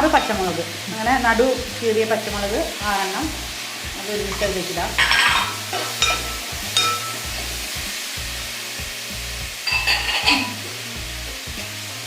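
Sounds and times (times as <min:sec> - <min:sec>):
background music: 0:00.0 - 0:12.0
vegetables frying in oil: 0:00.0 - 0:12.0
spoon scraping a pan: 0:03.4 - 0:08.2, 0:09.6 - 0:10.8.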